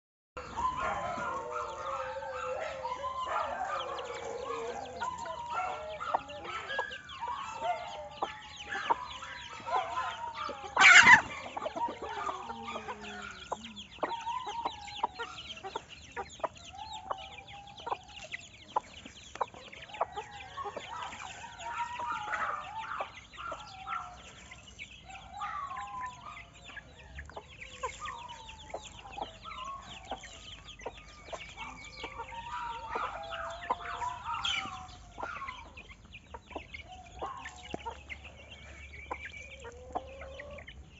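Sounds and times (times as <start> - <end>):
chickens clucking: 0.4 - 40.9
loud sharp chicken call: 9.7 - 13.2.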